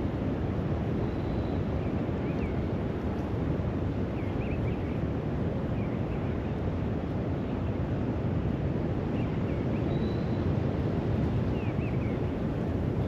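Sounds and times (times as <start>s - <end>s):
wind rumble on microphone: 0.0s - 13.0s
faint bird chirps: 1.0s - 2.6s, 9.2s - 10.5s.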